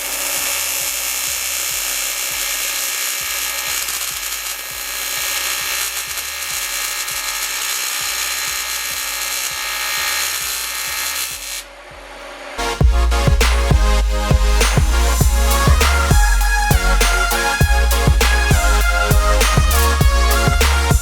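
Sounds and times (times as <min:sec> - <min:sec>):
welding arc buzzing crackle: 0:00.0 - 0:11.7.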